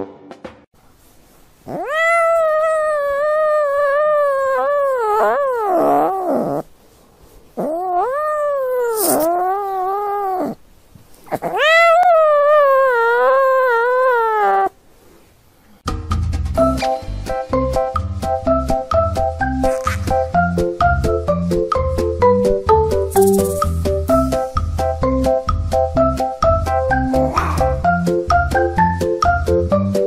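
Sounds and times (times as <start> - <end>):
cat meowing: 1.7 - 6.6, 7.6 - 10.6, 11.3 - 14.8.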